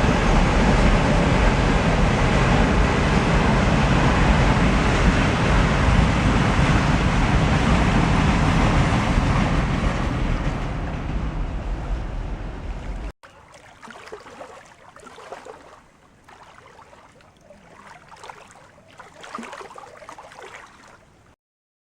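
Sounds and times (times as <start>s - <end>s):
train wagons rumbling over viaduct: 0.0s - 13.7s.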